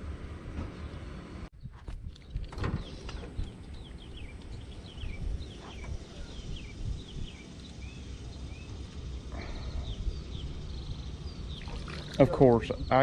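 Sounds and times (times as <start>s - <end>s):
steady low rumble: 0.0s - 13.0s
birds chirping: 0.8s - 13.0s.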